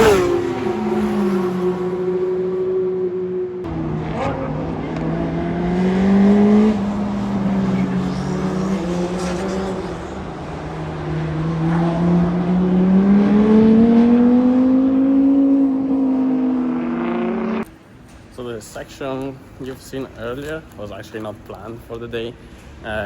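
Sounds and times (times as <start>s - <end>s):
car engine revving: 0.0s - 17.7s.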